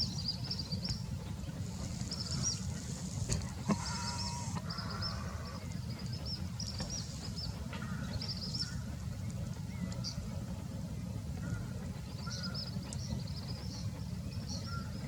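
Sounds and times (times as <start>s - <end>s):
small birds cheeping: 0.0s - 15.0s
steady low rumble: 0.0s - 15.0s.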